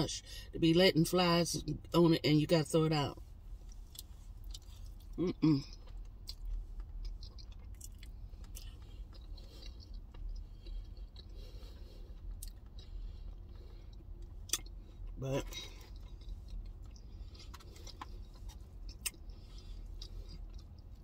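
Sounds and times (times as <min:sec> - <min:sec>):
close-up chewing: 0:03.6 - 0:21.0.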